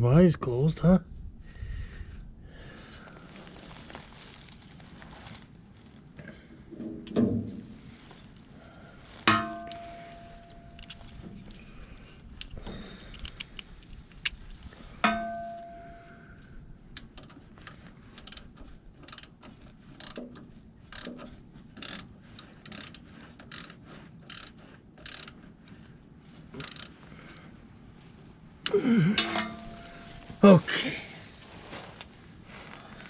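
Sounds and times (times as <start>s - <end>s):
metal tool clink: 9.2s - 11.2s, 15.0s - 16.2s, 29.1s - 30.5s
ratchet wrench clicking: 17.6s - 19.3s, 20.0s - 20.2s, 20.9s - 25.4s, 26.6s - 27.0s.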